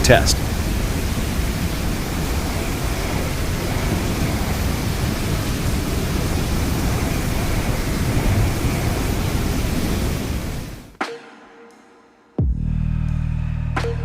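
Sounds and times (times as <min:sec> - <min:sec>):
strong snowstorm wind blowing: 0:00.0 - 0:11.0.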